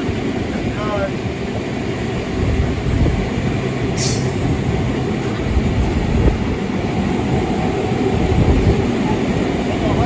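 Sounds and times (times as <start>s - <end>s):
train wheels rumbling: 0.0s - 10.0s
brief steam hiss: 4.0s - 4.4s.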